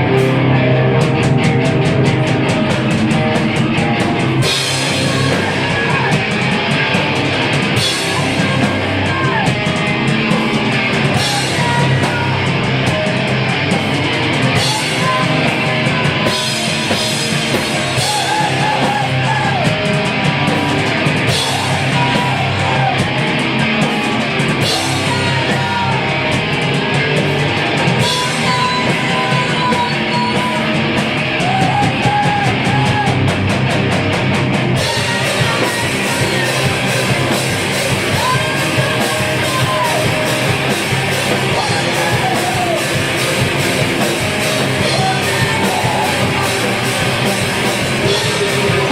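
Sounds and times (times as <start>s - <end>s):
bass guitar: 0.0s - 48.9s
distorted guitars: 0.0s - 48.9s
pounding drums: 0.0s - 48.9s
screamed vocals: 11.1s - 12.7s, 14.5s - 19.9s, 20.5s - 26.3s, 34.8s - 48.9s.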